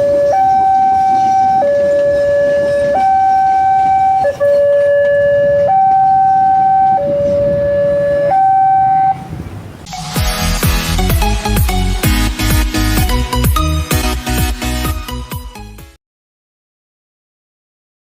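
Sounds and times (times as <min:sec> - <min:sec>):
level-crossing two-tone alarm: 0:00.0 - 0:09.3
electronic music: 0:09.9 - 0:15.8.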